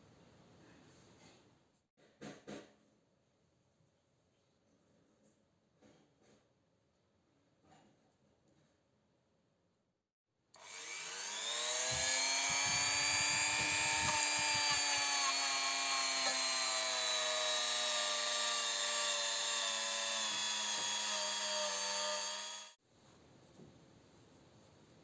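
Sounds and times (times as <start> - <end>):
power tool motor running: 10.6 - 22.8.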